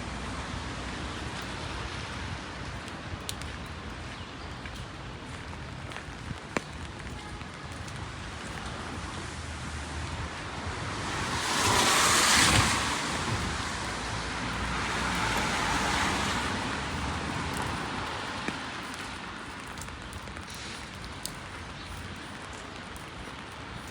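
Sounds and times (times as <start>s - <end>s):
rainy city street ambience: 0.0s - 23.9s
car tyres hissing on wet road: 8.8s - 19.3s.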